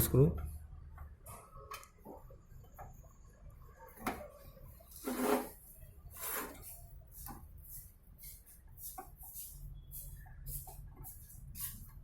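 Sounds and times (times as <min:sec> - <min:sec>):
parts and tools scraping: 0:04.9 - 0:07.3.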